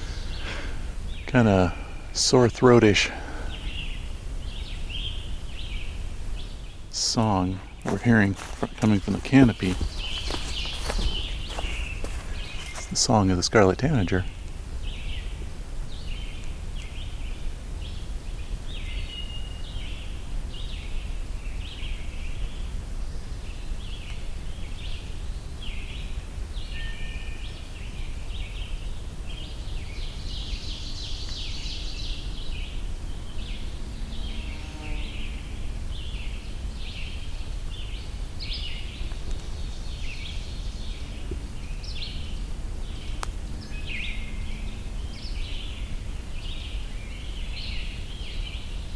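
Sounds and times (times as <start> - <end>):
bird singing hoarse phrases: 0.0 - 15.2
songbird chorus: 0.0 - 48.9
steady low rumble: 5.8 - 14.8.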